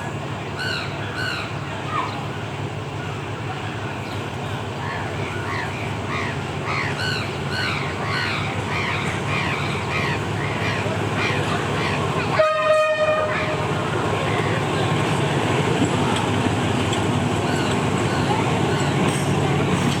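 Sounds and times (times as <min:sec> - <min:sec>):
train rumbling: 0:00.0 - 0:20.0
birds calling: 0:00.6 - 0:02.3, 0:04.0 - 0:12.4, 0:13.1 - 0:19.8
train horn blast: 0:12.3 - 0:13.8.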